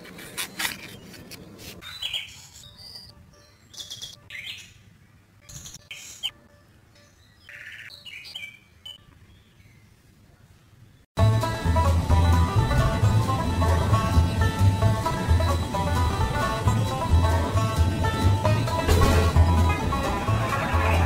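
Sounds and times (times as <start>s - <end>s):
birds chirping and tweeting: 0.0s - 11.1s.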